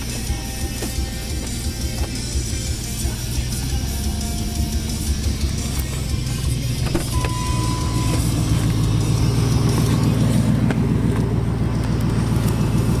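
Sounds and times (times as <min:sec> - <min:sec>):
truck engine idling: 0:00.0 - 0:13.0
steady beep: 0:07.1 - 0:08.4.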